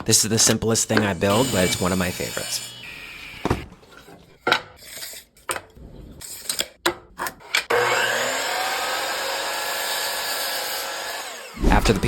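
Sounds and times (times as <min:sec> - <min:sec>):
power saw cutting: 0:00.4 - 0:03.7, 0:07.7 - 0:12.0.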